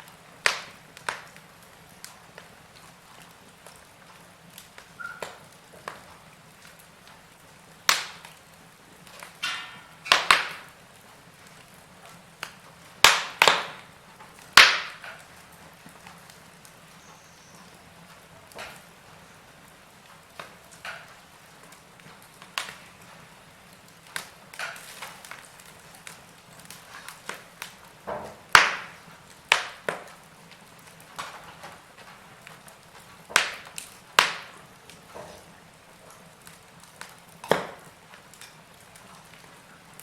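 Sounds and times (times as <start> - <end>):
fire popping: 0.0 - 40.0
wood fire crackling: 0.0 - 40.0.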